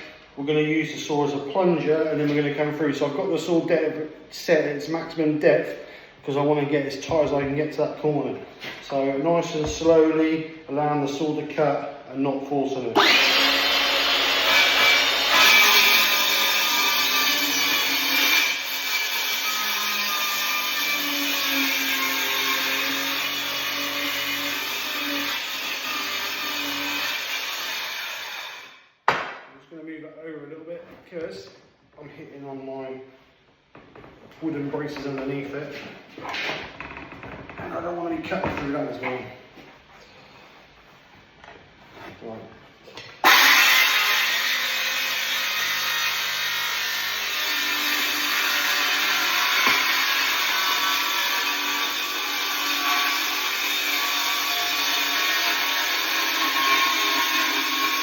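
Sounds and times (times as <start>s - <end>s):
circular saw cutting worktop: 13.0s - 29.4s, 43.0s - 58.0s.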